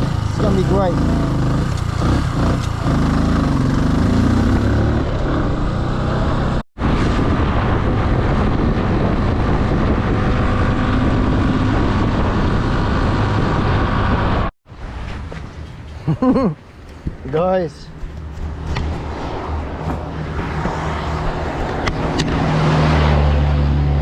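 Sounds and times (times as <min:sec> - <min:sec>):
motorcycle engine accelerating: 0:00.0 - 0:14.5
riding noise rush: 0:06.8 - 0:24.0.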